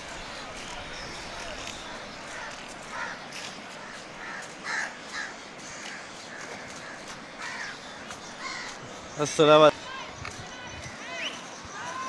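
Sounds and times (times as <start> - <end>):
river water rushing: 0.0 - 12.0
crows cawing: 0.3 - 9.2.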